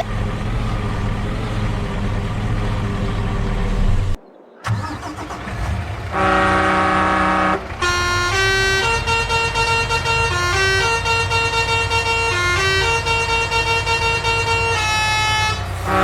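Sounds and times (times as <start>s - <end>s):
cartoon truck engine rumble: 0.0s - 16.0s
truck horn blast: 5.6s - 16.0s
tooting horn tune: 6.1s - 16.0s.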